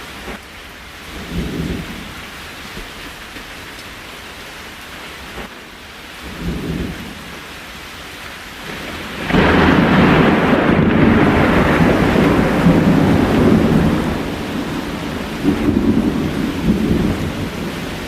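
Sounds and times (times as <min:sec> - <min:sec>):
steady rain: 0:00.0 - 0:18.0
thunder rumbling: 0:08.6 - 0:18.0.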